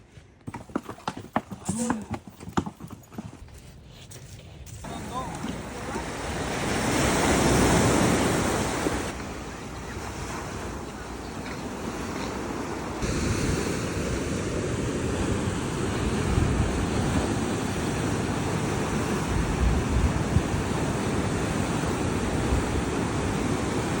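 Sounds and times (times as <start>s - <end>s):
wind rumbling on microphone: 3.4s - 24.0s
surf washing onto beach: 4.8s - 24.0s.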